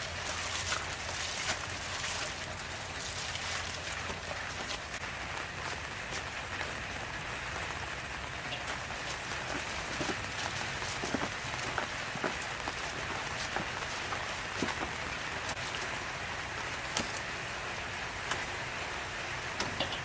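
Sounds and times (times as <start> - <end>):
hot oil sizzling with pops: 4.0 - 20.0.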